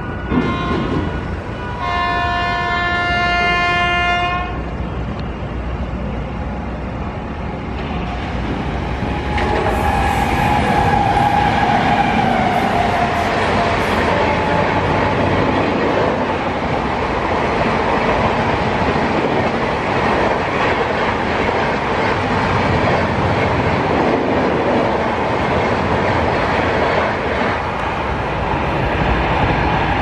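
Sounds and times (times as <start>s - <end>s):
train rumble: 0.0s - 30.0s
wheels rushing on rail: 0.0s - 30.0s
train horn blast: 0.3s - 4.7s.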